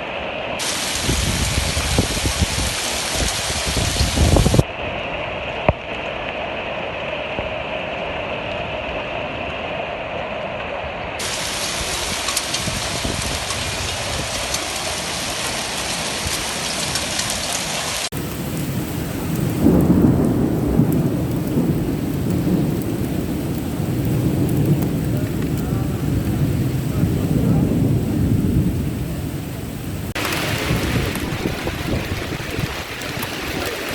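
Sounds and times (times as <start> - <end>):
heavy rain pouring: 0.0 - 10.0, 11.2 - 33.9
deep rumble: 18.1 - 33.9.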